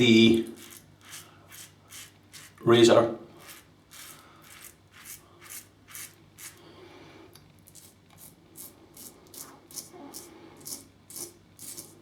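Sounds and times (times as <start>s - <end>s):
razor scraping stubble: 0.4s - 2.6s, 3.4s - 6.6s.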